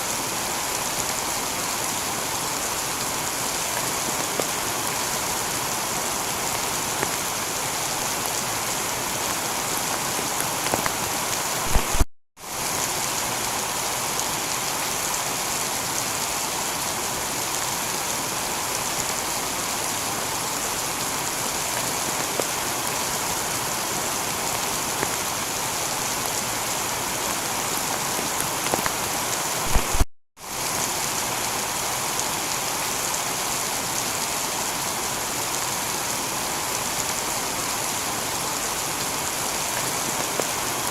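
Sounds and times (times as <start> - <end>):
heavy rain on a tiled roof: 0.0 - 40.9.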